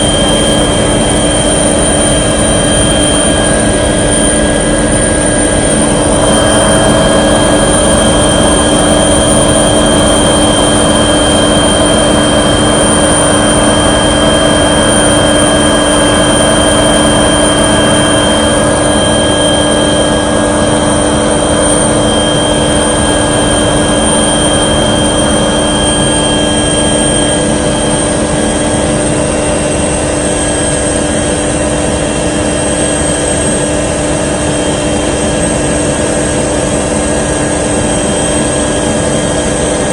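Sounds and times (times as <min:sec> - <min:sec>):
aircraft engine droning: 0:00.0 - 0:39.9
steady whining tones: 0:00.0 - 0:39.9.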